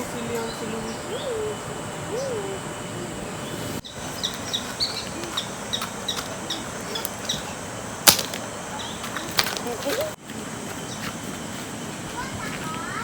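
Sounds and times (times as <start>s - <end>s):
high bird chirps: 3.2s - 7.6s
loud sharp crack: 8.0s - 8.5s.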